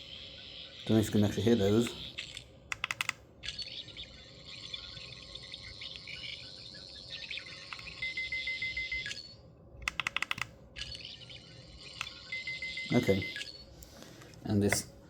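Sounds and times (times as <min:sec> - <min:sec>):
toy screwdriver electronic warbling: 0:03.4 - 0:09.3, 0:10.3 - 0:13.6.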